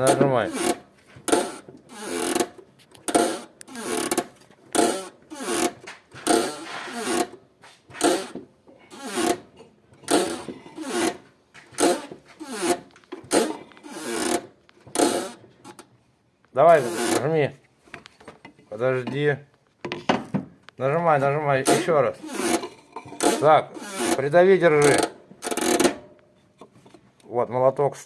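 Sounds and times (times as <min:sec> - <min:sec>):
clutch pedal squealing: 0:00.0 - 0:15.9, 0:16.7 - 0:17.3, 0:21.7 - 0:26.0.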